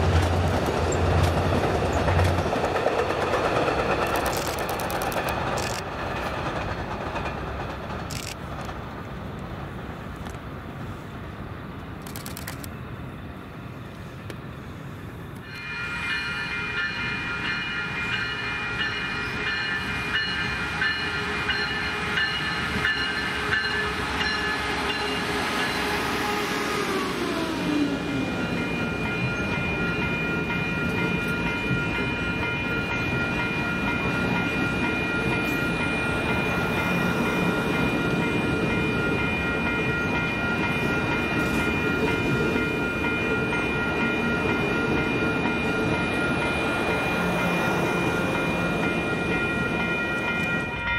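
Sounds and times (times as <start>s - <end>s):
train rumble: 0.0s - 50.9s.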